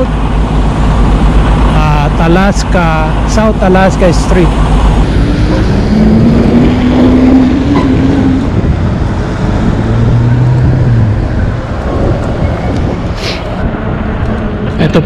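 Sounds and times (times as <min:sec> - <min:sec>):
road traffic: 0:00.0 - 0:15.0
steady engine hum: 0:00.0 - 0:15.0
wind on microphone: 0:04.5 - 0:14.8.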